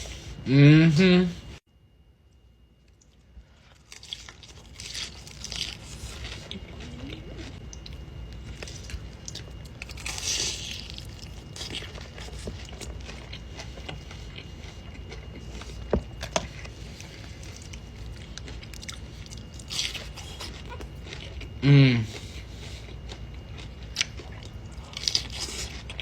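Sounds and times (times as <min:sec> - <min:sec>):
chewing: 0:02.8 - 0:26.0
crunchy bite: 0:03.7 - 0:14.0.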